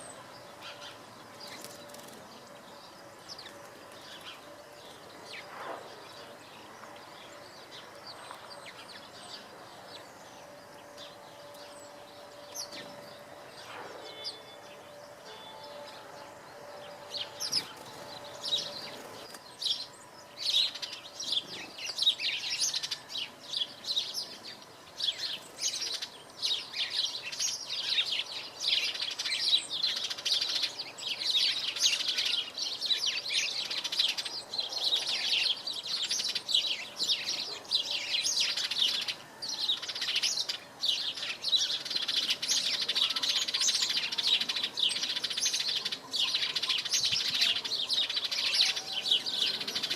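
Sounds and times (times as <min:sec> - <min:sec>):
robin singing: 0:00.0 - 0:49.9.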